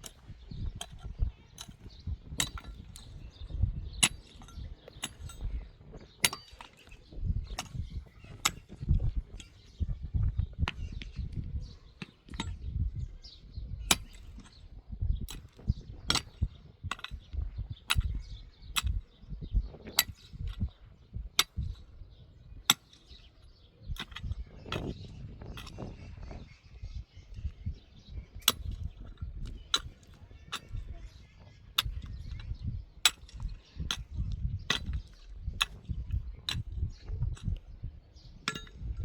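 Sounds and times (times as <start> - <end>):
tools clinking and knocking: 4.0 - 7.8, 15.3 - 17.3, 24.0 - 25.9, 38.4 - 39.0.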